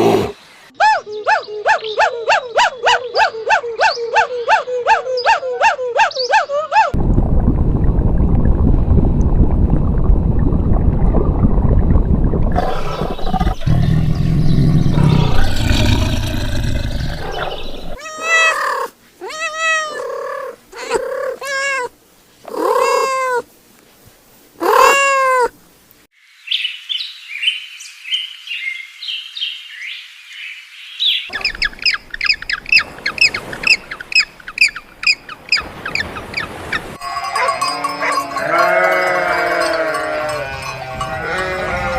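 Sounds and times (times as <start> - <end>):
loud low rough animal noise: 12.5 - 18.0
cat meowing: 18.0 - 21.9.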